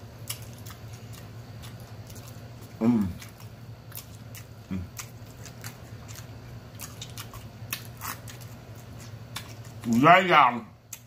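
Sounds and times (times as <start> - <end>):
steady low hum: 0.0 - 11.0
wet chewing and lip-smacking: 0.2 - 10.0
person humming mm: 2.8 - 3.2.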